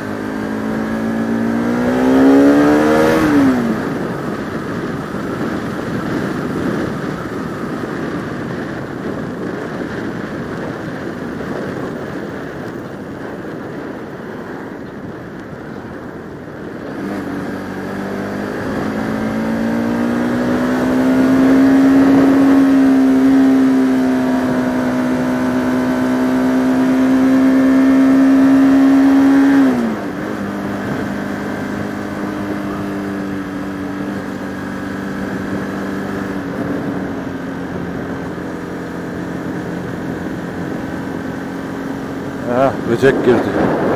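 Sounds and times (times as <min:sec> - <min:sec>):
motorcycle engine revving: 0:00.0 - 0:14.2, 0:15.9 - 0:43.9
wind rushing over microphone: 0:00.0 - 0:43.9.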